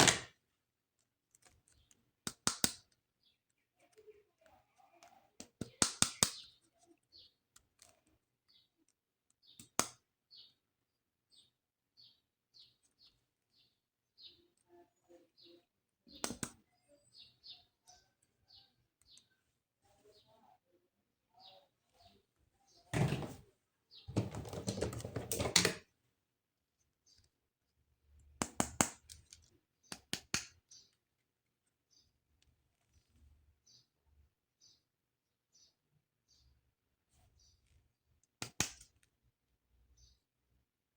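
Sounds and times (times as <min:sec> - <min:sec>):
plastic toy parts clicking: 0:00.0 - 0:00.3, 0:01.0 - 0:03.6
sharp plastic clicks: 0:00.0 - 0:00.4, 0:01.3 - 0:03.6, 0:05.0 - 0:06.6, 0:08.8 - 0:10.1, 0:16.2 - 0:16.6, 0:28.4 - 0:31.0, 0:38.2 - 0:39.1.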